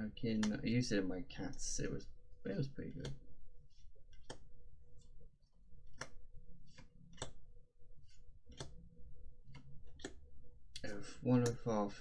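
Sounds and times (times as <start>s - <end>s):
faint steady hum: 0.0s - 12.0s
cards flicked by hand: 2.9s - 5.1s, 5.8s - 7.4s, 8.1s - 8.8s.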